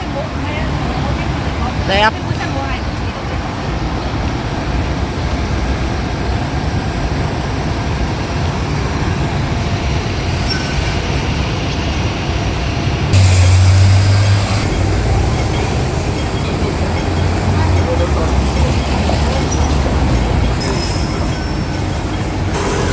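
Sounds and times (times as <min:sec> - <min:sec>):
passing vehicles rumbling: 0:11.3 - 0:22.9
vehicle engine drone: 0:13.0 - 0:22.9.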